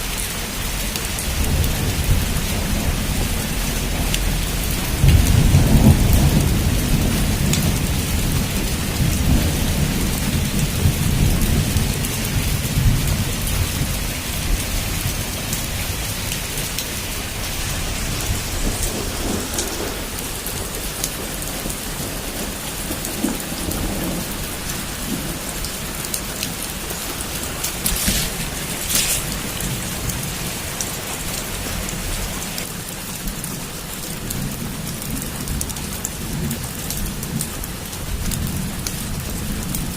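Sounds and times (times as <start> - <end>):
heavy rain falling: 0.0 - 39.9
low rumble of thunder: 0.7 - 32.2
sharp thunder crackles: 1.2 - 31.8.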